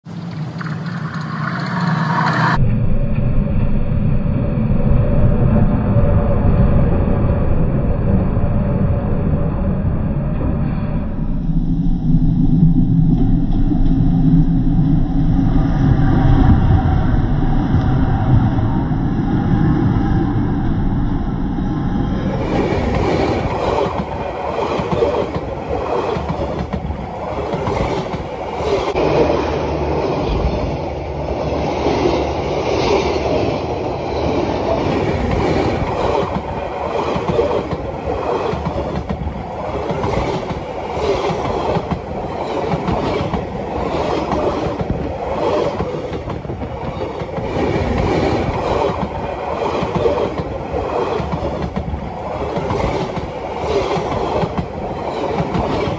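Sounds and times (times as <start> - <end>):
train wheels clattering on track: 22.4 - 55.9.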